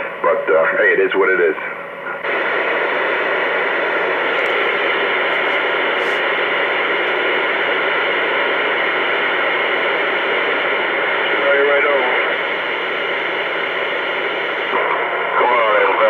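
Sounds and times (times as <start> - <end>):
radio static hiss: 2.1 - 16.0.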